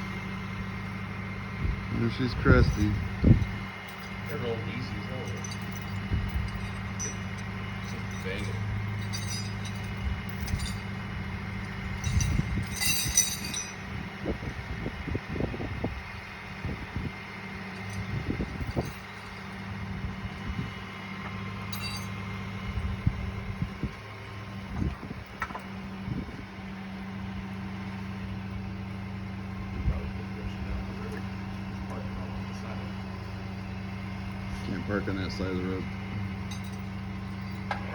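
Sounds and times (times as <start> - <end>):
vehicle engine running: 0.0 - 37.9
metallic clinking: 2.1 - 14.0, 17.6 - 19.8, 21.6 - 22.4, 36.2 - 37.9.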